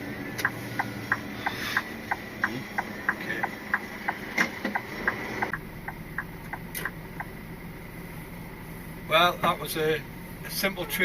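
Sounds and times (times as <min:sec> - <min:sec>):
turn signal ticking: 0:00.0 - 0:08.5
truck engine running: 0:00.0 - 0:11.0.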